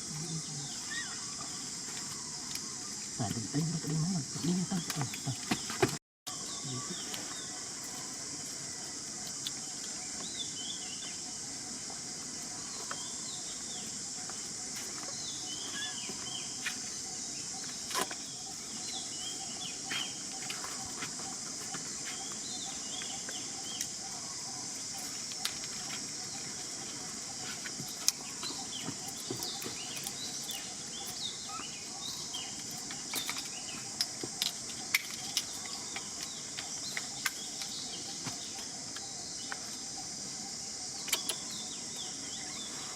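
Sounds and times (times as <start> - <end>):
bird chirps: 12.6 - 42.9.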